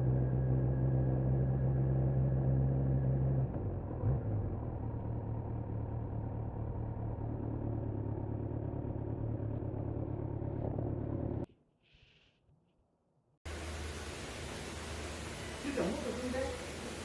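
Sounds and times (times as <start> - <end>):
motorcycle engine running: 0.0 - 11.5.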